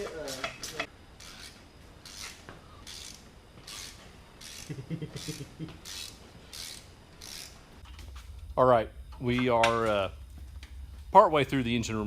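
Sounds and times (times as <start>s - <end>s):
ratchet clicking: 0.3s - 7.6s.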